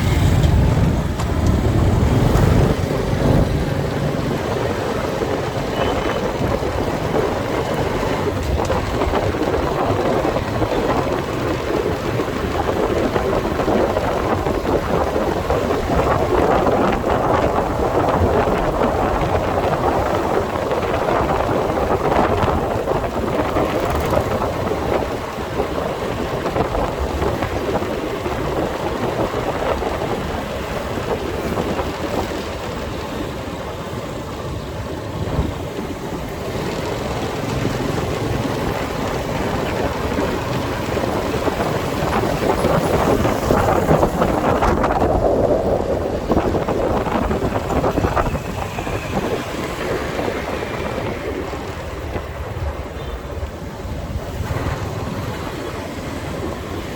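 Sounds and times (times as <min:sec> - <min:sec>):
motorcycle engine: 0:00.0 - 0:13.8, 0:21.6 - 0:27.7
road noise: 0:00.0 - 0:56.9
wind buffeting microphone: 0:00.0 - 0:56.9.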